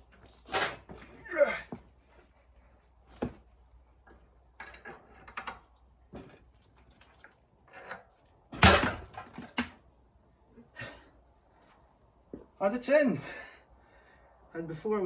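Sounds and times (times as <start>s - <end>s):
metal knocks and clunks: 8.5s - 9.8s.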